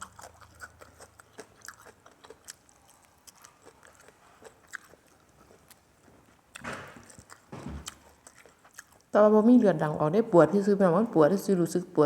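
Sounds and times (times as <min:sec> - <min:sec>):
chewing and crunching food: 0:00.0 - 0:09.2.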